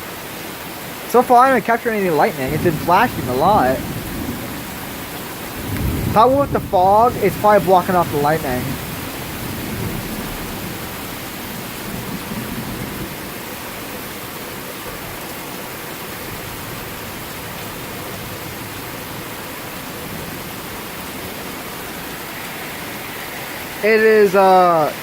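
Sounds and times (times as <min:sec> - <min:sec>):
heavy rain falling: 0:00.0 - 0:25.0
low thunder rumbling: 0:02.4 - 0:13.7.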